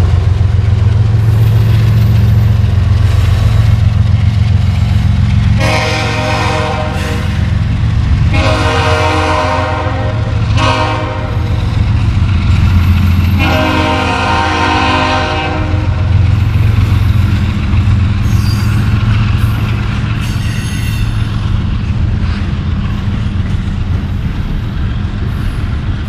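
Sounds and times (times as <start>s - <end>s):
train wheels rumbling on rail: 0.0s - 26.0s
locomotive horn blasts: 5.5s - 7.5s, 8.2s - 11.7s, 13.2s - 16.2s.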